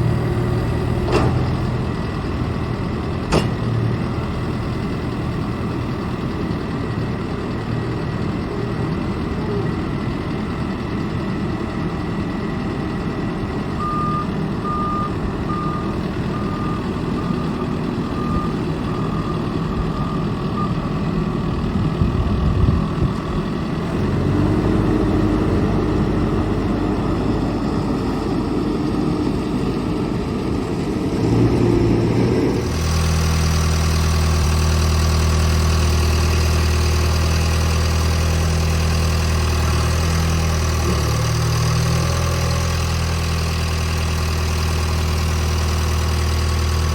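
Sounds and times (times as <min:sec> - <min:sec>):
diesel engine running: 0:00.0 - 0:46.9
reversing alarm beeping: 0:13.8 - 0:21.0.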